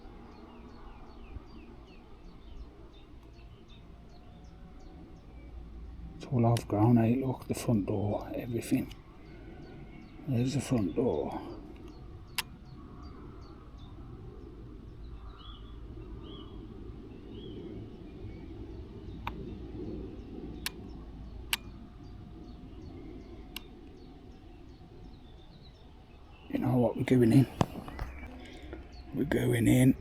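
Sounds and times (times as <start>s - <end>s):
bird chirps: 0.0s - 30.0s
low wind rumble: 0.0s - 30.0s
sharp clicks: 11.3s - 12.7s, 19.2s - 19.5s, 20.6s - 21.8s, 23.5s - 24.0s.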